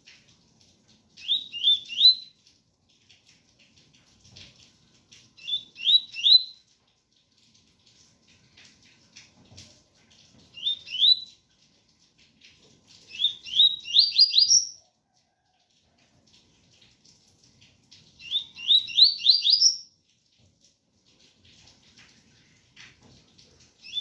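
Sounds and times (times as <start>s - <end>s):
bird singing whistled notes: 1.2s - 2.3s, 5.4s - 6.6s, 10.6s - 11.3s, 13.1s - 14.8s, 18.2s - 19.9s.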